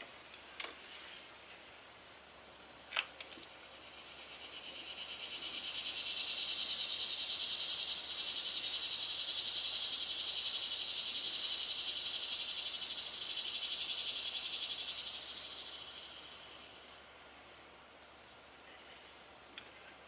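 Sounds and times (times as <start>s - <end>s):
high insect buzzing: 2.3s - 17.0s.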